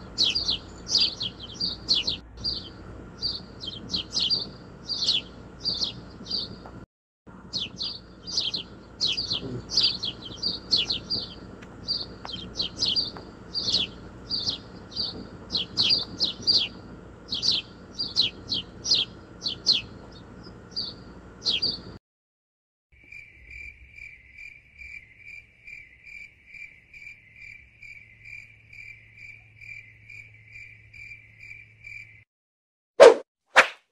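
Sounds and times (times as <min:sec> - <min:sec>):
pulsing insect trill: 0:00.0 - 0:06.6, 0:07.4 - 0:21.9, 0:23.0 - 0:32.2
bird chirping: 0:00.0 - 0:22.0
faint low hum: 0:00.0 - 0:22.0.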